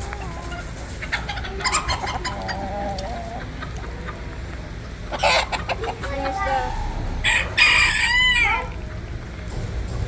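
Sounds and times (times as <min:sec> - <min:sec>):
chickens clucking: 0:00.0 - 0:10.0
chicken squawks: 0:05.1 - 0:08.7.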